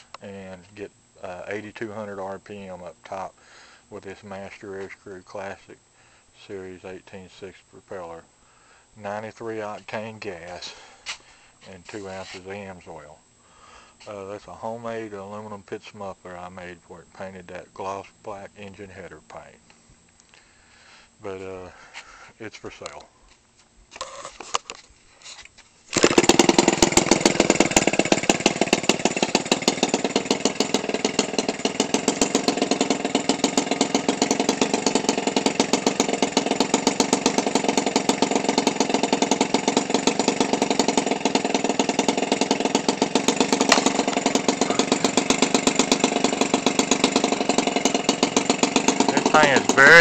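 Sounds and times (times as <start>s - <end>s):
two-stroke engine idling: 26.0s - 50.0s.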